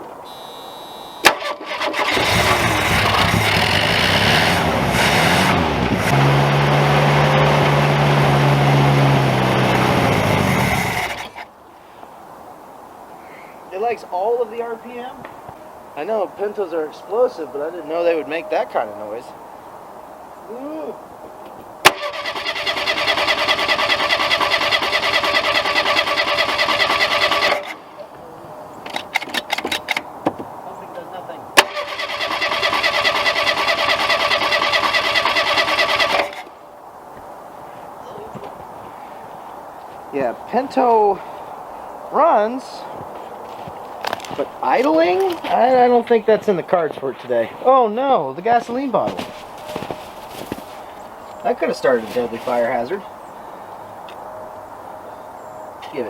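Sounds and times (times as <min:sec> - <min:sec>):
car engine running at high revs: 0:02.1 - 0:11.4.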